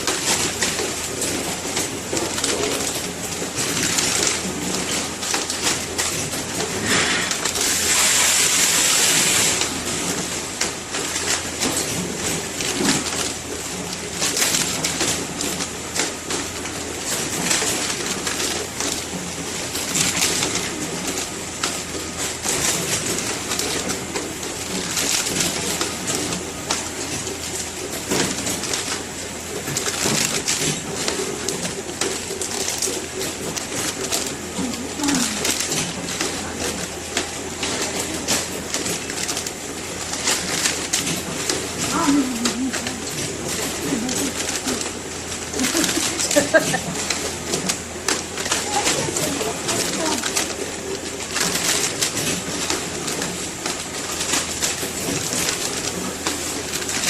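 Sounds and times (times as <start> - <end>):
machine clicks and rattles: 0.0 - 57.0
hiss: 6.8 - 9.6.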